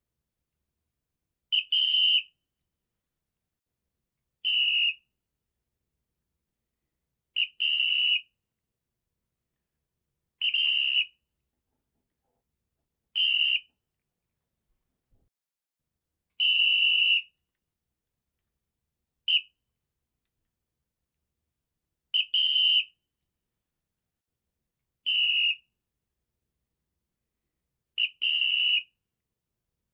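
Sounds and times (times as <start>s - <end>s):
high-pitched whistle blasts: 1.5s - 2.4s, 4.4s - 5.2s, 7.4s - 8.4s, 10.4s - 11.3s, 13.1s - 13.8s, 16.4s - 17.4s, 19.2s - 19.6s, 22.1s - 23.0s, 25.0s - 25.8s, 28.0s - 29.0s.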